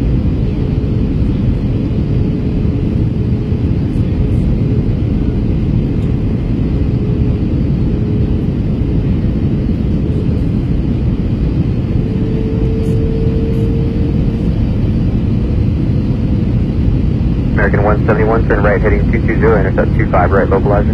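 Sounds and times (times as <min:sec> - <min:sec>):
jet cabin rumble: 0:00.0 - 0:20.9
faint steady hum: 0:17.3 - 0:20.9.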